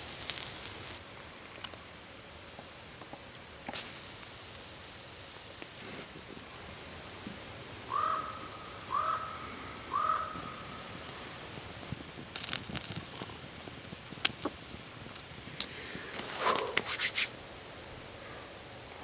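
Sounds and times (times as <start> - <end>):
sharp crackles: 0.0 - 17.5
steady hiss: 0.0 - 19.0
crow cawing: 7.9 - 11.0.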